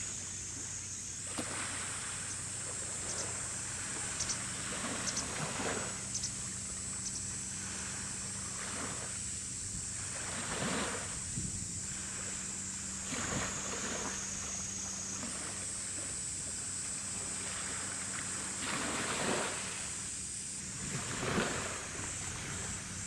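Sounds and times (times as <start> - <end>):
thin high-pitched whine: 0.0 - 18.8
steady low hum: 0.0 - 23.0
gusty wind buffeting microphone: 11.0 - 12.1.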